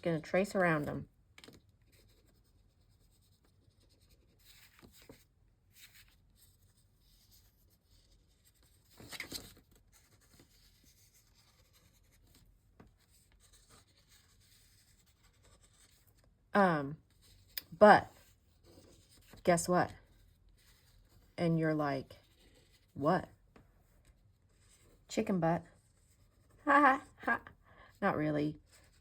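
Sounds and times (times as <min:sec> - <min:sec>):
paper rustle: 0:03.2 - 0:16.4.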